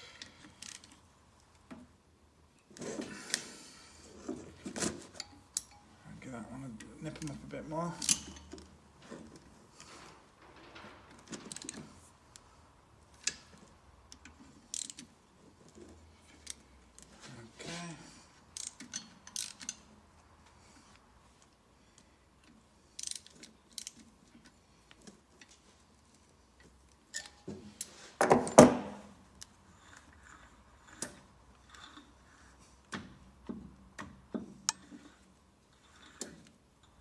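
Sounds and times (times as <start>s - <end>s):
metal clatter: 9.9s - 12.1s.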